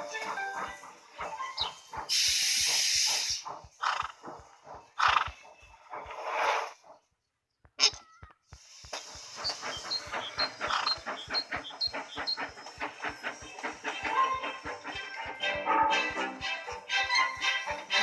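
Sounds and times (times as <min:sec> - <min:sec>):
loud hiss: 0:02.1 - 0:03.5
cartoon animal calls: 0:07.8 - 0:08.3
clicking beat: 0:08.9 - 0:18.0.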